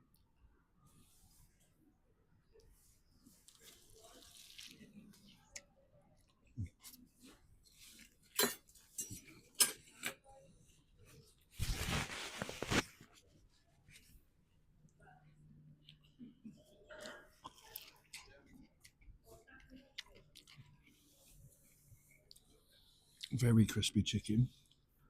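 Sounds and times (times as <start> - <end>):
crunching of crispy food: 3.4 - 5.3.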